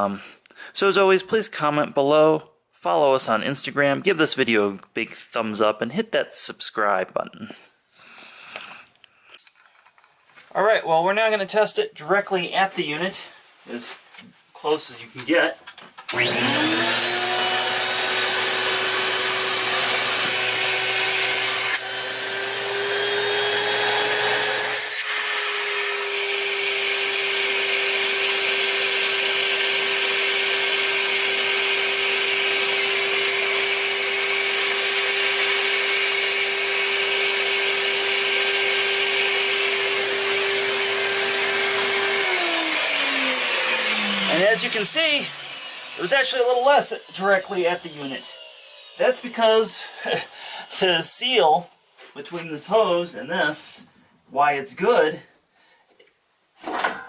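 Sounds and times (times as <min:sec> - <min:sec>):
vacuum motor whine: 0:16.1 - 0:24.6, 0:40.0 - 0:44.7.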